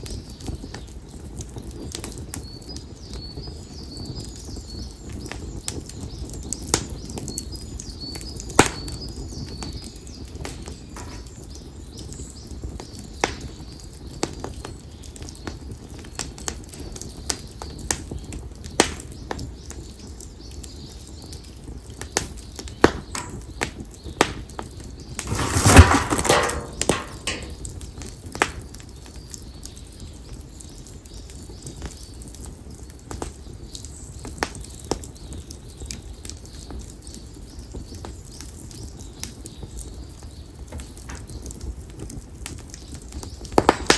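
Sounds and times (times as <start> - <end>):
firewood crackling and popping: 0.0 - 43.9
fire hissing: 25.0 - 27.8.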